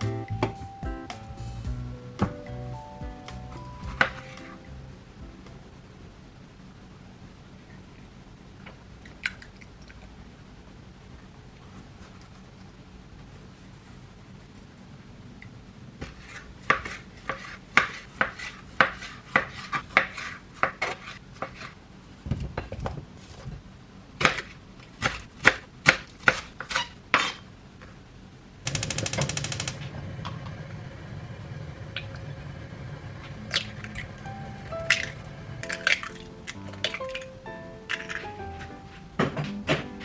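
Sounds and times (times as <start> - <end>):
steady low hiss: 0.0 - 9.0, 28.3 - 40.0
rapid ticking: 28.7 - 36.7.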